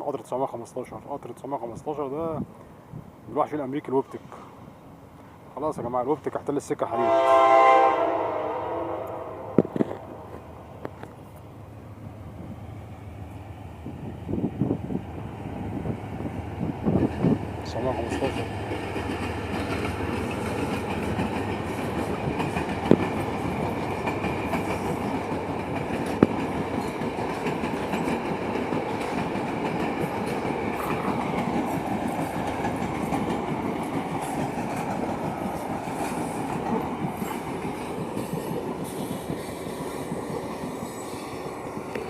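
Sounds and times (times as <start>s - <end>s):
train wheels clattering on rails: 16.2s - 42.0s.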